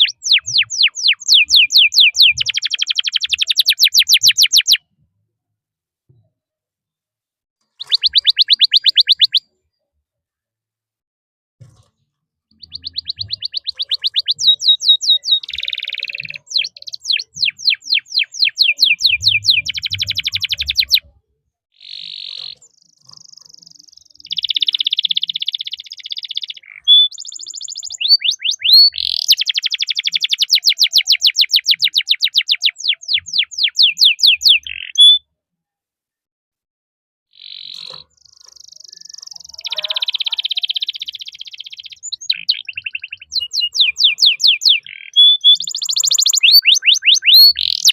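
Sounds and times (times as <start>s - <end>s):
canary singing trills: 0.0s - 4.8s, 7.7s - 9.5s, 12.5s - 21.1s, 21.8s - 35.2s, 37.3s - 47.9s.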